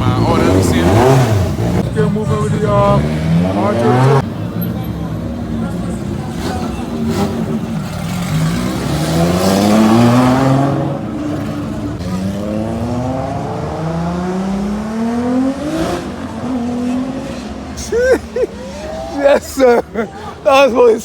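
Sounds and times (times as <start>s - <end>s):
car engine revving: 0.0s - 4.4s, 5.5s - 17.8s.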